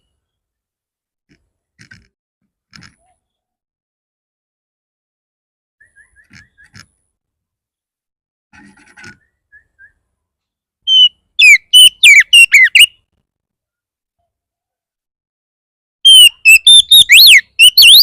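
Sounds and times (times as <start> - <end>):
bird singing whistled notes: 5.8 - 6.8, 9.2 - 10.1, 10.9 - 13.0, 16.0 - 18.0
faint soft chirps: 5.8 - 7.0.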